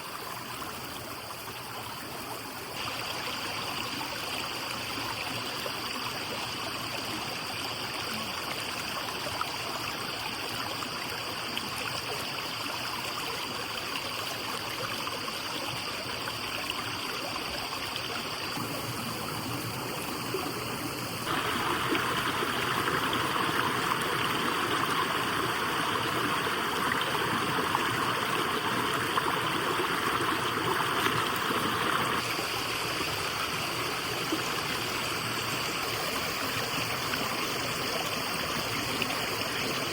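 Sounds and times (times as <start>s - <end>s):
stream water rushing: 2.4s - 39.9s.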